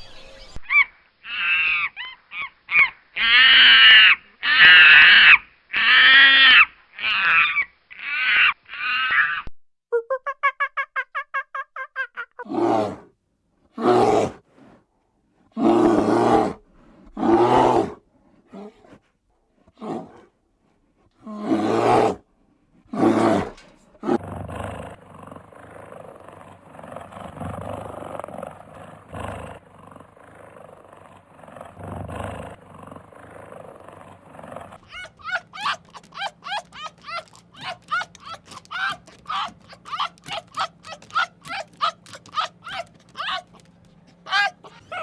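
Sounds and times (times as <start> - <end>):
rumbling animal noise: 12.5 - 13.1, 13.8 - 14.8, 15.6 - 19.0, 19.7 - 20.3, 21.2 - 22.2, 22.9 - 45.0
farm animal deep rough calls: 13.8 - 14.8, 15.5 - 19.0, 19.7 - 20.3, 21.2 - 22.2, 22.8 - 45.0.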